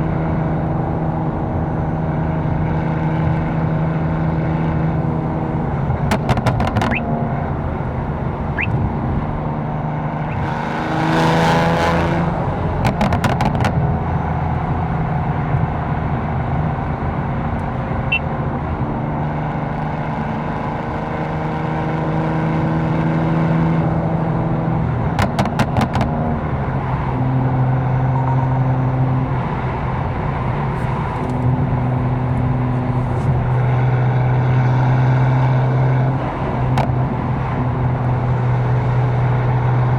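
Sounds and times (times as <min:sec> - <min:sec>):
car engine and exhaust revving: 0:00.0 - 0:39.9
exhaust crackles: 0:06.1 - 0:08.9.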